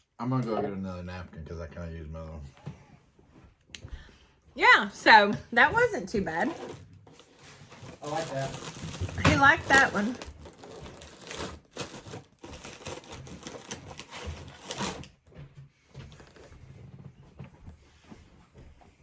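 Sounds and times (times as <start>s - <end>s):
wrappers rustling: 5.0s - 15.2s, 16.0s - 16.7s.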